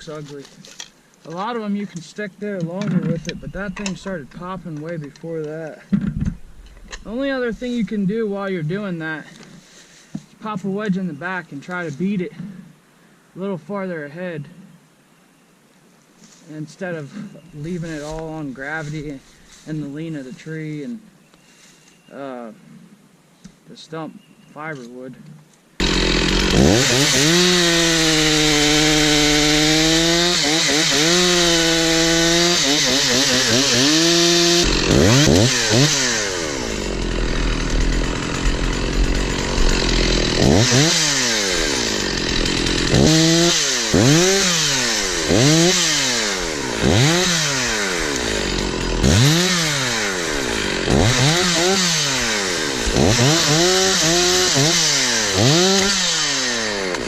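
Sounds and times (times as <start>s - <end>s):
chainsaw revving: 25.8s - 57.0s.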